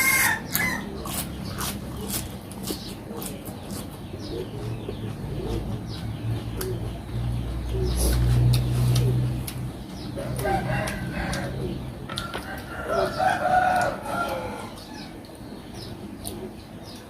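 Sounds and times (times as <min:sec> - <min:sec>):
rooster crowing: 0:00.0 - 0:00.9, 0:10.2 - 0:15.1.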